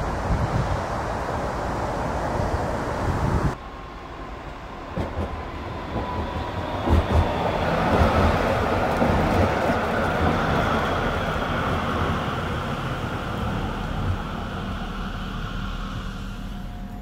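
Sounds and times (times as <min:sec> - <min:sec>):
train rumbling on rails: 0:00.0 - 0:17.0.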